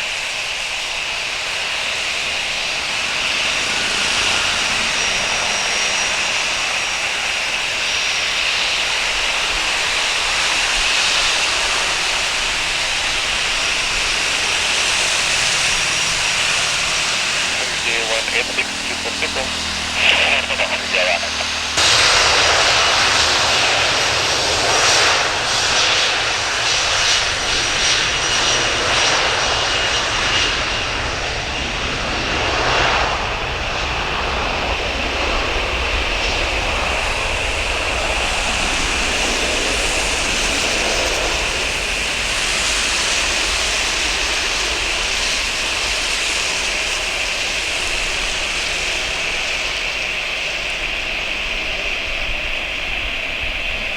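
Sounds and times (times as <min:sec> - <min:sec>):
jet engines at takeoff power: 0:00.0 - 0:53.9
high whine: 0:15.2 - 0:22.2.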